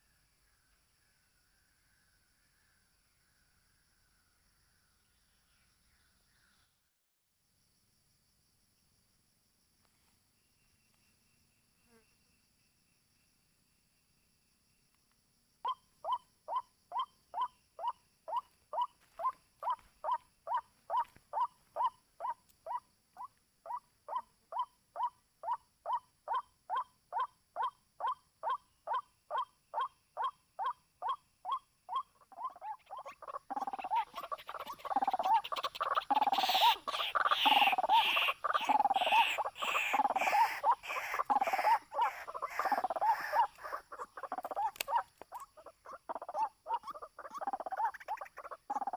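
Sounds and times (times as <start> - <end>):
waterhen croaking calls: 31.9 - 48.9.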